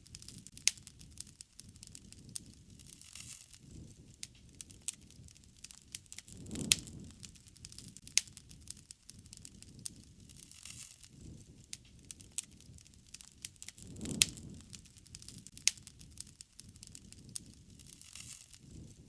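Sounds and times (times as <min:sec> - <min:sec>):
low rush of flame: 0:00.0 - 0:19.0
sharp fire pops: 0:00.0 - 0:19.0
wood fire crackling: 0:00.0 - 0:19.0.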